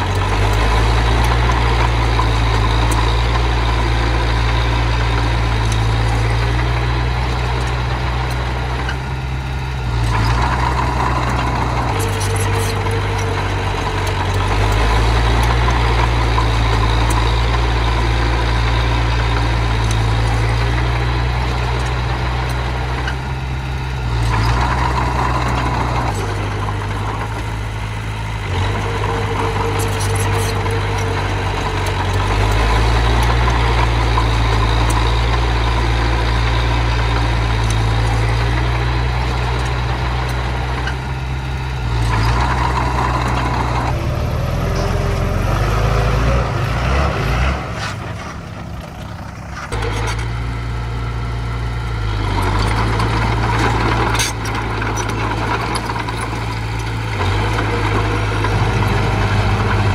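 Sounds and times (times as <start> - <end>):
bulldozer engine running: 0.0 - 59.9.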